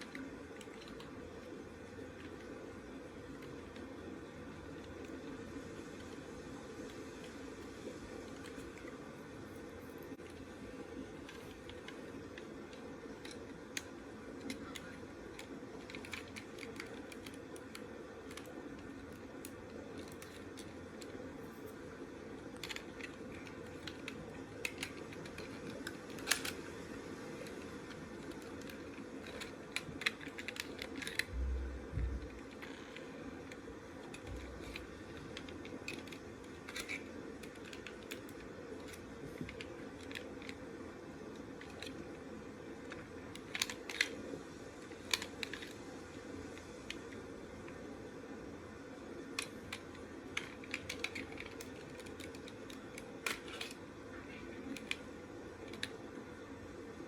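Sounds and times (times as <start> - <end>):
plastic toy parts clicking: 0.0 - 1.4, 8.3 - 8.9, 11.2 - 21.7, 22.4 - 31.6, 32.2 - 40.7, 41.4 - 42.1, 42.8 - 45.8, 49.3 - 53.9, 54.6 - 56.0
low hum: 31.2 - 33.4
dull thumps: 31.3 - 32.4.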